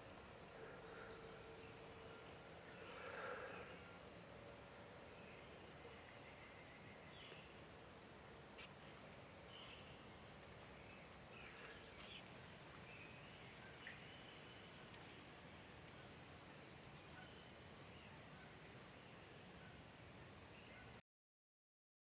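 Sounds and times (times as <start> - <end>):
faint bird song: 0.0 - 21.0
low steady hiss: 0.0 - 21.0.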